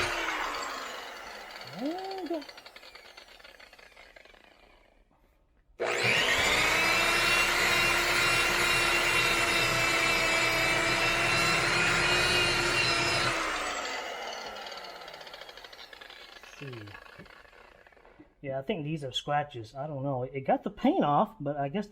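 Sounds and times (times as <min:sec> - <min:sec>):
orbital buffer motor whine: 0:00.0 - 0:03.2, 0:05.8 - 0:15.7.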